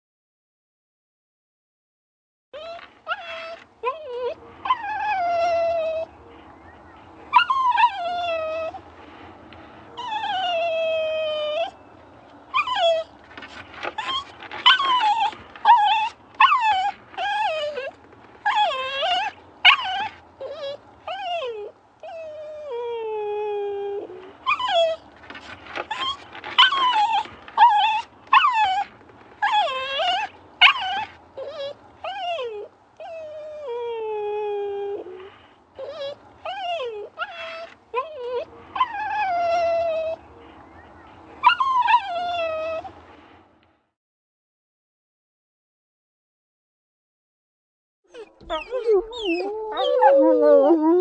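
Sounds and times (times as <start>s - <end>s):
dog whining: 2.6s - 6.4s, 7.3s - 8.8s, 10.0s - 11.8s, 12.5s - 13.2s, 13.8s - 25.1s, 25.8s - 40.6s, 41.4s - 43.0s, 48.1s - 51.0s.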